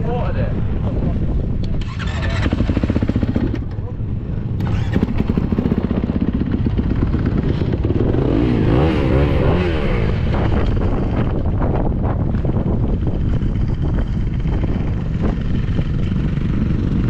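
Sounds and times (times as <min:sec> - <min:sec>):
motocross engine revving: 0:01.8 - 0:03.7, 0:04.6 - 0:11.4.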